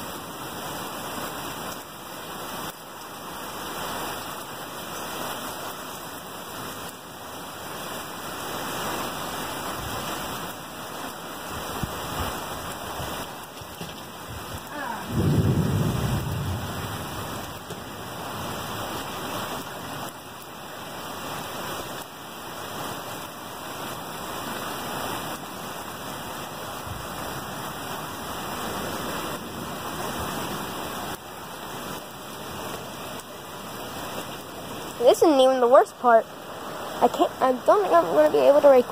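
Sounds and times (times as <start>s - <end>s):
heavy rain pouring: 0.0s - 38.9s
thunder rumble: 12.9s - 19.0s.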